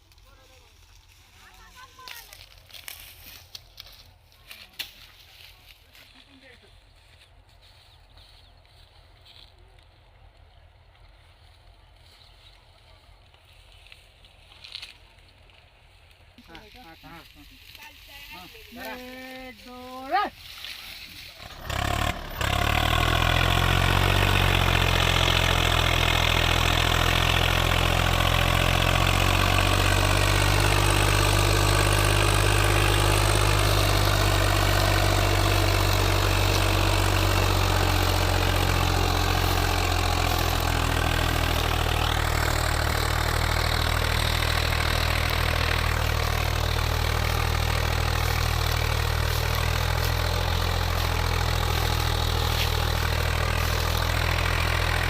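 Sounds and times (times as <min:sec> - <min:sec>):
tractor diesel engine idling: 0:16.3 - 0:55.0.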